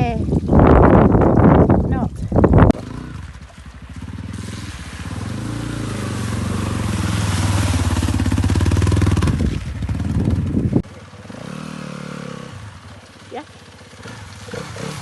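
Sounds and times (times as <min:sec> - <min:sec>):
dirt bike engine revving: 0:02.7 - 0:12.9, 0:13.9 - 0:15.0.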